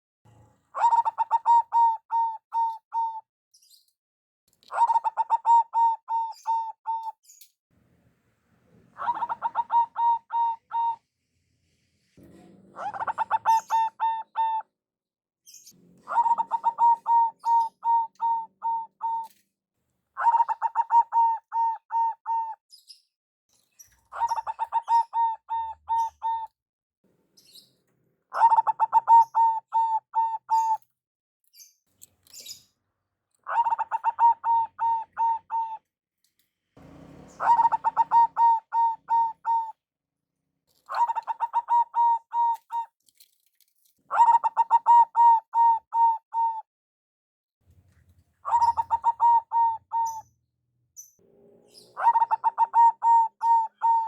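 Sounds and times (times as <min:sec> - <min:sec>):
dove cooing: 0:00.7 - 0:03.2, 0:04.7 - 0:07.1, 0:08.7 - 0:11.1, 0:12.3 - 0:14.6, 0:15.9 - 0:19.3, 0:20.2 - 0:22.6, 0:24.0 - 0:26.5, 0:28.3 - 0:30.8, 0:33.4 - 0:35.8, 0:36.8 - 0:39.8, 0:40.8 - 0:42.9, 0:44.1 - 0:46.6, 0:48.4 - 0:50.4, 0:51.4 - 0:54.0.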